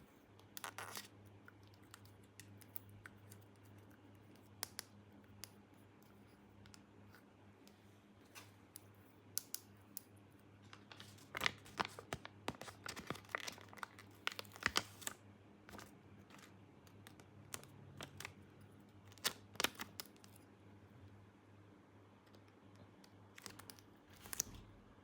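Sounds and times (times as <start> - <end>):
packaging crinkling: 10.7 - 18.4, 19.1 - 20.3, 23.3 - 24.8.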